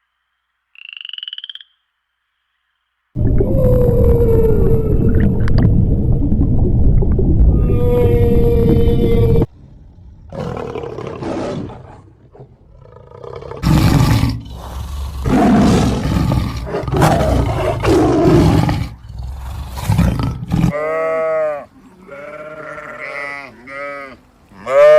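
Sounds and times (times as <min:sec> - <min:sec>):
large animal roaring and growling: 0:03.2 - 0:20.9.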